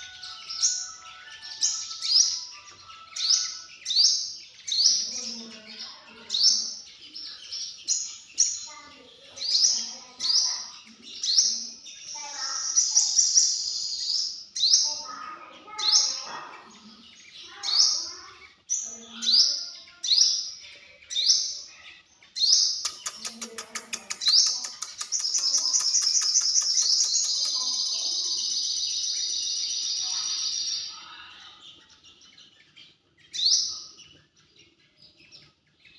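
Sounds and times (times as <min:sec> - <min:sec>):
bird chip notes: 0:00.0 - 0:04.3
fast trilled bird song: 0:00.0 - 0:35.9
bird ticking notes: 0:22.5 - 0:30.9.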